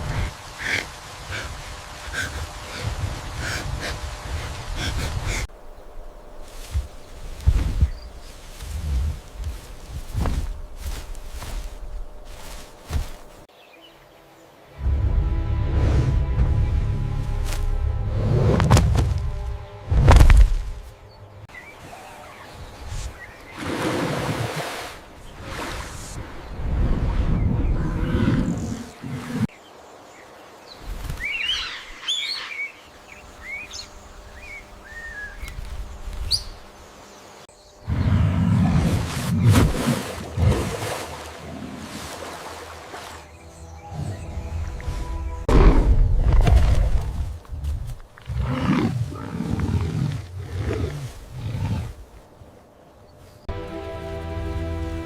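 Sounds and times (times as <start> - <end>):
surf and wind rushing: 0.0 - 13.5
birds chirping: 0.0 - 14.3, 29.6 - 38.2
large animal roaring: 48.2 - 52.0.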